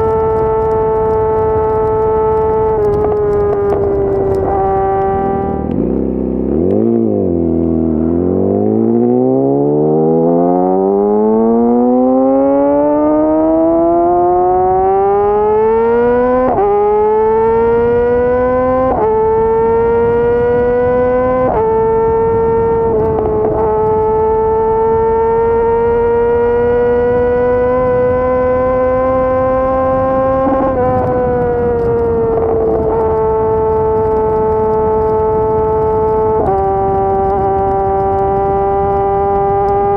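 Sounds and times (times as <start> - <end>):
motorcycle gear shifts: 0.0 - 8.8, 17.9 - 39.9
motorcycle engine accelerating: 0.0 - 39.9.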